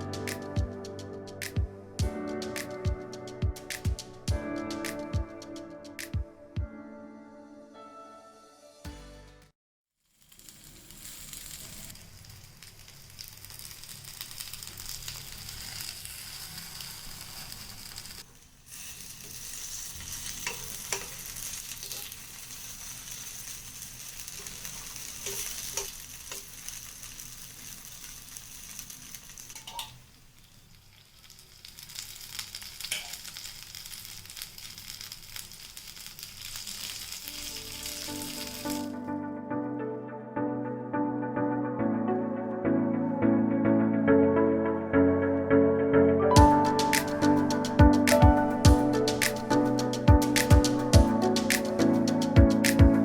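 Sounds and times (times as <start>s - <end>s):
oil sizzling: 10.1s - 39.1s, 46.4s - 53.0s.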